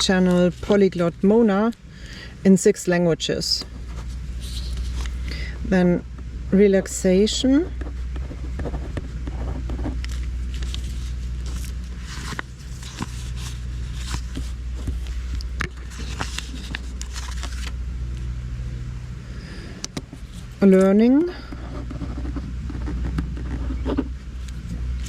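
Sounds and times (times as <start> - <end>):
steady low hum: 0.0 - 25.0
stickers peeling and pressing: 8.6 - 17.8.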